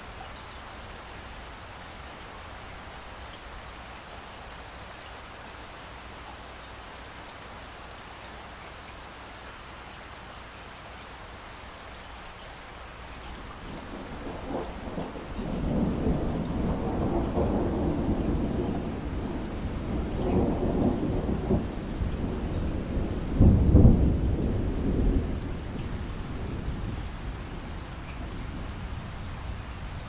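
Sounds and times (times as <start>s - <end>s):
steady rainfall: 0.0s - 30.0s
rolling thunder: 13.6s - 30.0s.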